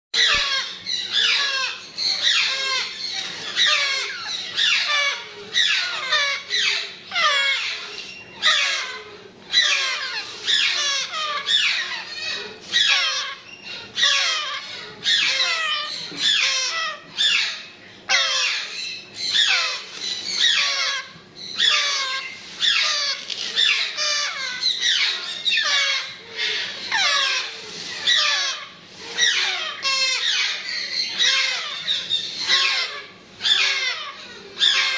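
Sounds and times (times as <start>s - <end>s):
parrot chicks calling: 0.2s - 34.9s.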